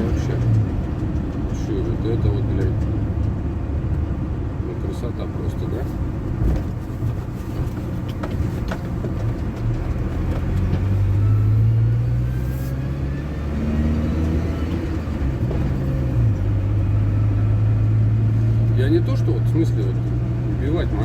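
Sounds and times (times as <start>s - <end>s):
petrol engine revving: 8.0s - 21.0s.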